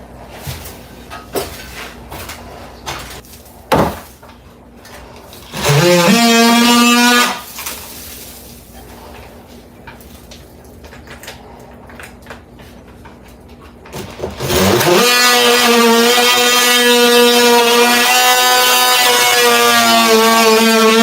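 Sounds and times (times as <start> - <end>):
power tool motor spinning: 5.5 - 7.5, 14.0 - 21.0.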